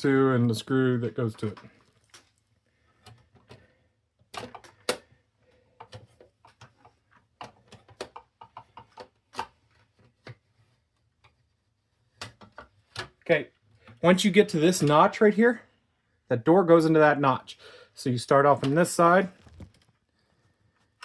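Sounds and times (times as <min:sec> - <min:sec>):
clicks of plastic parts and screws: 0:03.0 - 0:05.2.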